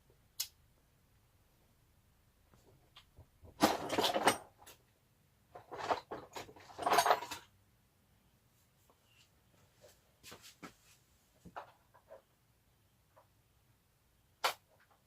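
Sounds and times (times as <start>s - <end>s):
metal hardware clattering: 3.6s - 4.8s, 5.6s - 7.5s.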